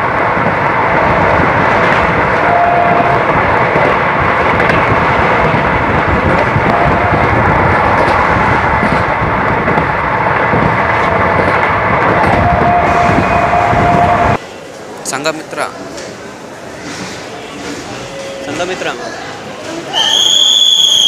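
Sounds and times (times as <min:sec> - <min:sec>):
wind rushing: 0:00.0 - 0:14.4
train wheels on rails: 0:00.0 - 0:21.0.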